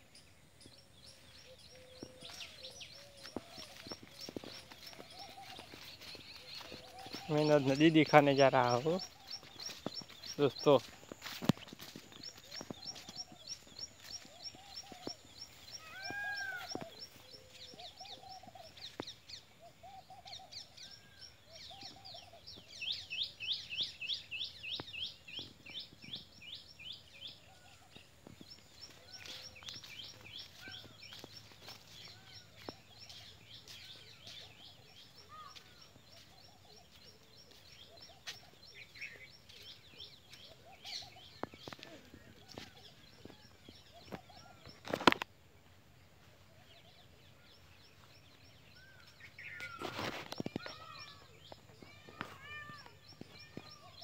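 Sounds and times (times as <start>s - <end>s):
footsteps clicking: 1.4s - 19.2s, 27.9s - 45.3s
brushing through undergrowth: 2.3s - 7.6s, 9.0s - 15.1s, 49.6s - 50.9s.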